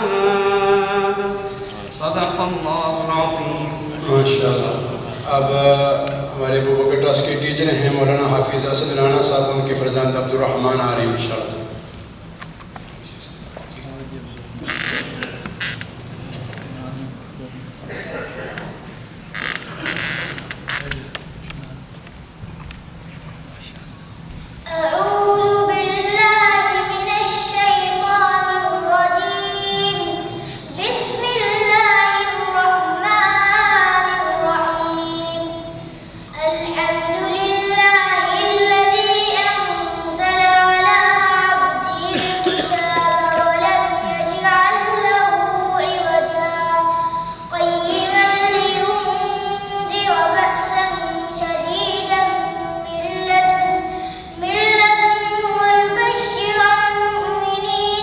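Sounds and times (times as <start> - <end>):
boy chanting melodically: 0.0 - 11.4, 24.7 - 58.0.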